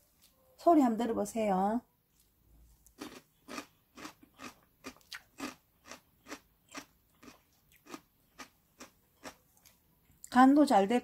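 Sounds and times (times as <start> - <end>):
crunchy food being chewed: 2.1 - 10.4.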